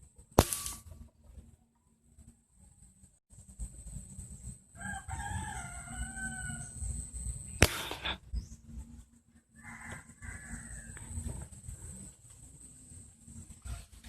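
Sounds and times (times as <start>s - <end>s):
sharp crack: 0.4s - 0.9s, 7.6s - 8.2s
rooster crowing: 4.7s - 6.9s, 9.5s - 11.4s.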